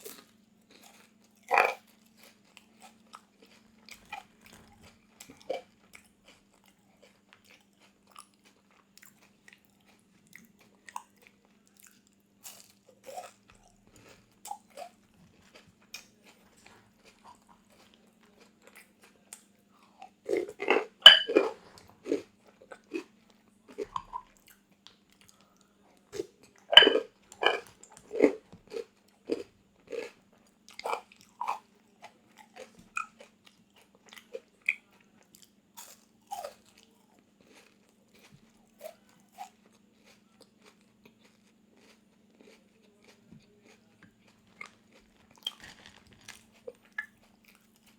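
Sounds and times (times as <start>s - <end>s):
crunchy biting and chewing: 0.0s - 25.3s, 26.2s - 47.9s.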